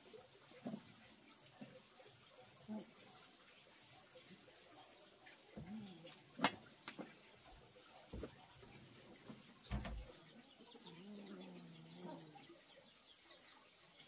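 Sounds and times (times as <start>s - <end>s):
faint low bird calls: 4.3s - 14.0s.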